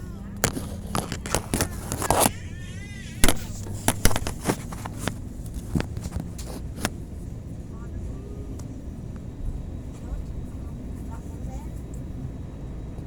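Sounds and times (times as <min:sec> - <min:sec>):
airliner cabin hum: 0:00.0 - 0:13.0
sharp clicks and knocks: 0:00.4 - 0:02.3, 0:03.2 - 0:07.0.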